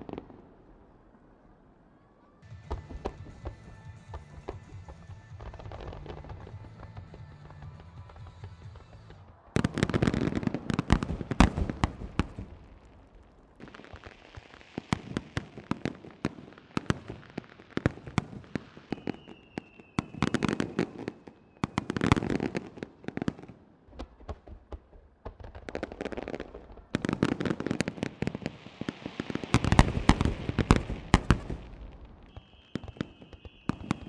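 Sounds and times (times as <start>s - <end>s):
long high firework whistle: 1.4s - 12.8s, 18.5s - 22.6s, 27.1s - 34.0s
firework crackling: 2.5s - 23.3s, 24.0s - 34.0s
firework shell bursts and booms: 29.5s - 34.0s.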